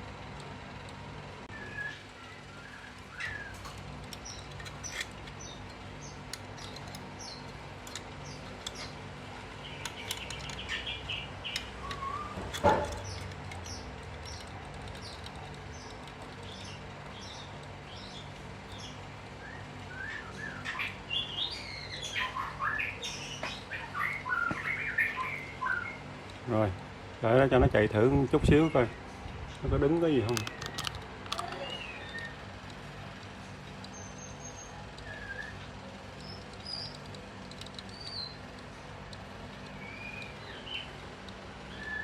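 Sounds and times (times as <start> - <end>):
steady low hum: 0.0 - 42.0
small birds chirping: 1.4 - 42.0
light clicks: 29.3 - 32.8.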